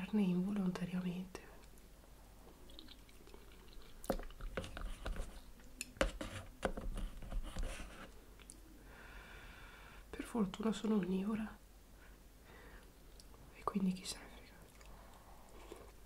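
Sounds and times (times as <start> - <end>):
wet chewing of noodles: 1.6 - 6.0, 14.6 - 16.0.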